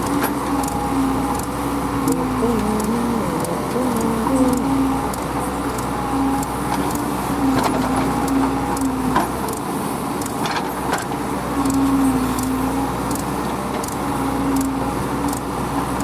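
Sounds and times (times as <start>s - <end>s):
heavy diesel machinery running: 0.0s - 16.0s
wavering held tone: 2.0s - 6.6s.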